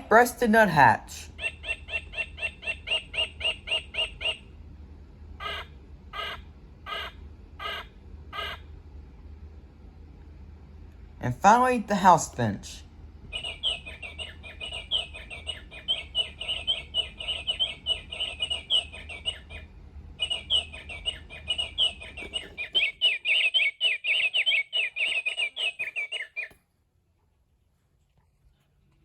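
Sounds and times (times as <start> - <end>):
recorded finch song from speaker: 0.0 - 4.6, 5.4 - 8.7, 13.2 - 26.6.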